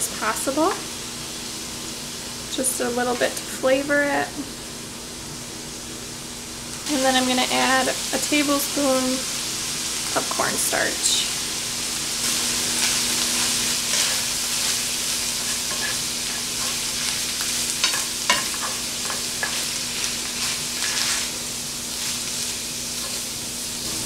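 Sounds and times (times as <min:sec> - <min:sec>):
pork filling sizzling in skillet: 0:00.0 - 0:24.0
spatula scraping pan: 0:12.6 - 0:21.4.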